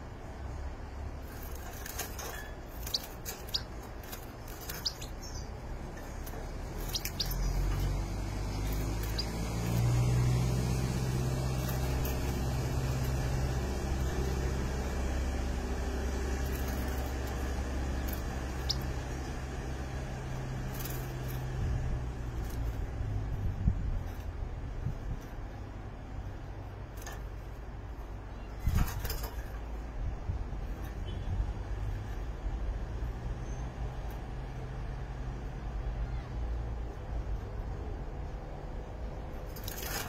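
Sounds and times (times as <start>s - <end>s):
bird chirps: 1.8s - 9.9s, 16.5s - 19.4s.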